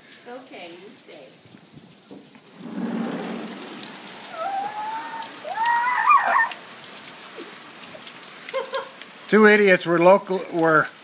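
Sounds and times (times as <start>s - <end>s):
heavy rain pouring: 0.0s - 11.0s
high-pitched wavering vocal calls: 4.1s - 6.6s.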